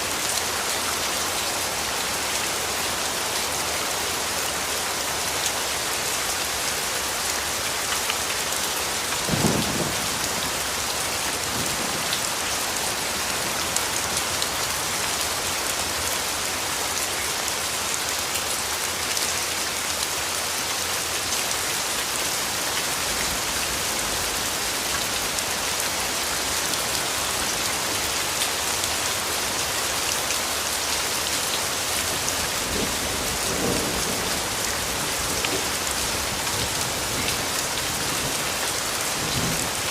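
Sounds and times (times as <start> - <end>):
heavy rain hiss: 0.0 - 39.9
low rumbles of thunder: 9.2 - 10.6.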